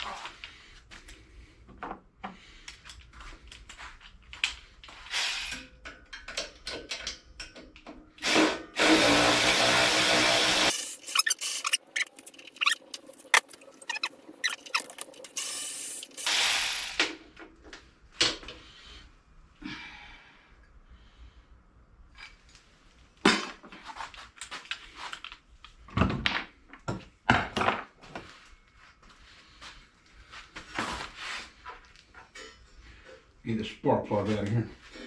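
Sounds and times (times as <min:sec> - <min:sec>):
power drill spinning: 0:05.0 - 0:05.7, 0:08.2 - 0:17.2
tools clicking and knocking: 0:05.5 - 0:08.1.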